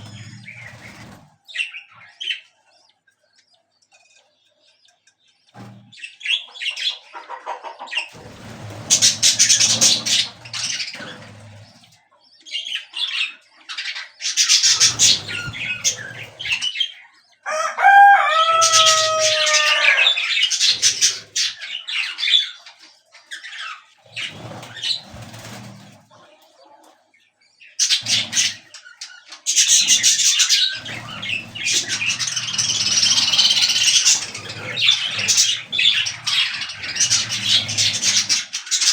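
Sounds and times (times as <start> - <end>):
budgerigars chirping and chattering: 0.0 - 38.9
wing flapping: 8.1 - 11.8, 14.4 - 16.7, 29.5 - 38.9
bird bending calls: 17.5 - 21.6, 29.6 - 38.9.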